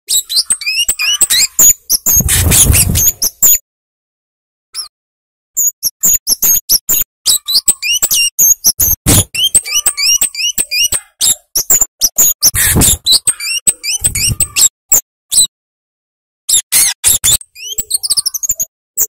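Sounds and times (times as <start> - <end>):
bird calling with sharp chips: 0.1 - 3.6, 5.6 - 14.7.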